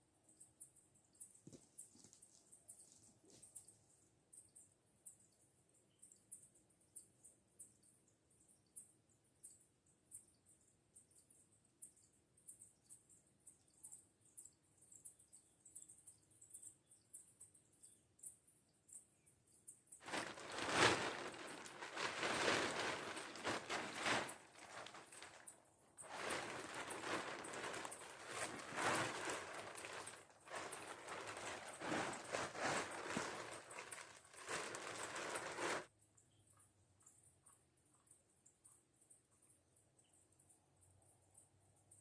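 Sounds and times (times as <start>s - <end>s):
dry leaves and twigs crunching: 20.0s - 35.9s.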